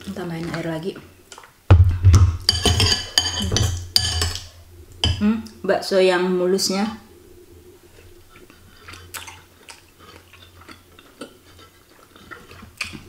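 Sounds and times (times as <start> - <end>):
faint low hum: 0.0 - 13.0
person chewing wet food: 7.9 - 13.0.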